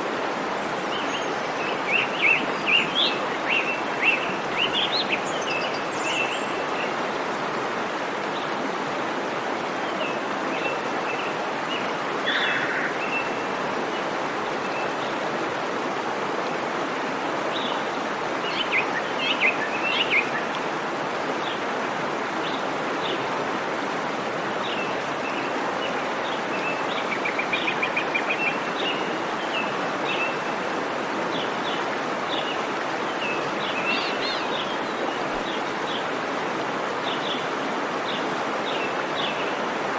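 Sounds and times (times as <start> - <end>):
waterfall rushing: 0.0 - 39.9
birds chirping: 10.0 - 13.6.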